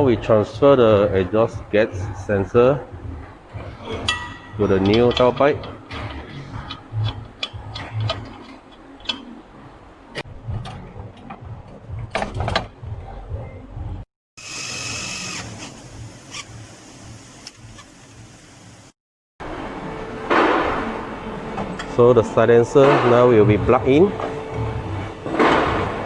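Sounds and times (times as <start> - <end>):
mechanical whirr: 14.4 - 19.0.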